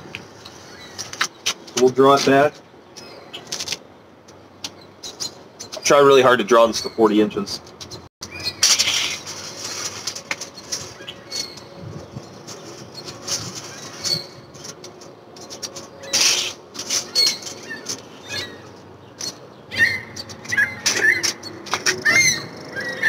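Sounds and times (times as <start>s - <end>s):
birds calling: 2.3s - 23.0s
scuffs and rustles: 8.6s - 18.8s.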